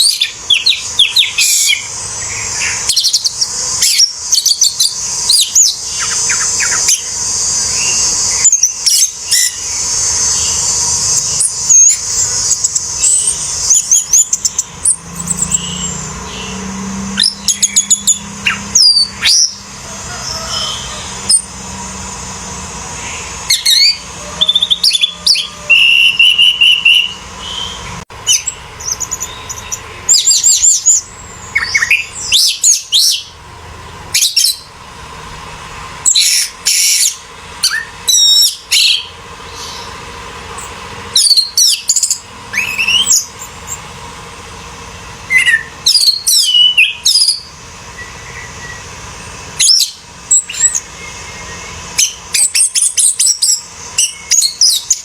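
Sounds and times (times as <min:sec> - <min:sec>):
thrush singing whistled trills: 0:00.0 - 0:55.0.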